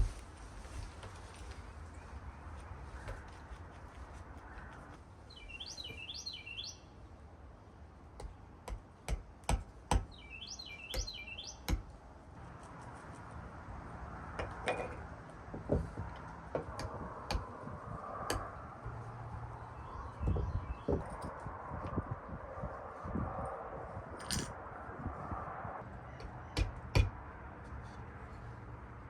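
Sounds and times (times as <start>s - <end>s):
songbird singing high notes: 5.3s - 6.9s, 10.1s - 11.7s.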